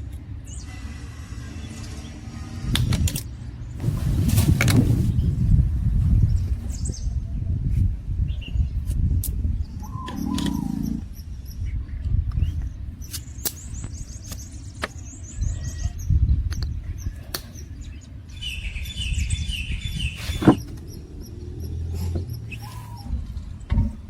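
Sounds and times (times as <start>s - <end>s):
low uneven rumble: 0.0s - 13.0s, 13.8s - 24.0s
small birds chirping: 0.0s - 24.0s
scattered clicks: 10.1s - 10.7s.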